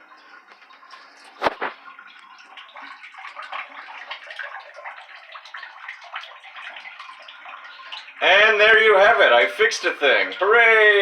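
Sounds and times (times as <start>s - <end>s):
water running into bathtub: 0.0s - 11.0s.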